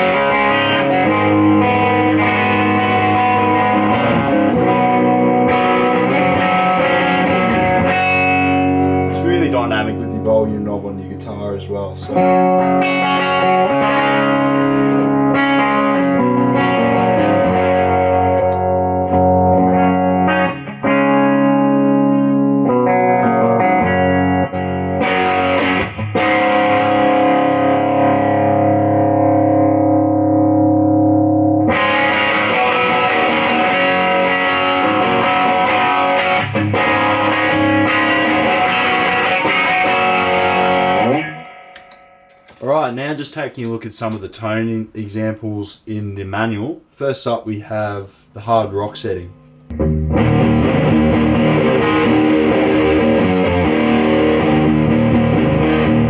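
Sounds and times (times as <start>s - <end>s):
overdriven electric guitar strumming: 0.0s - 42.6s, 49.4s - 56.0s.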